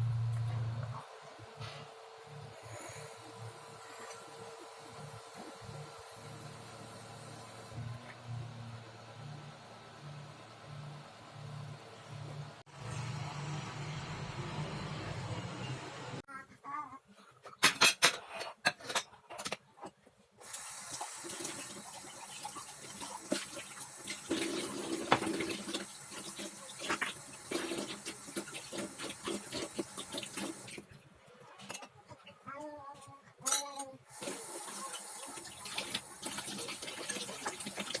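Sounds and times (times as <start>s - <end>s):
tap running into sink: 23.0s - 30.6s.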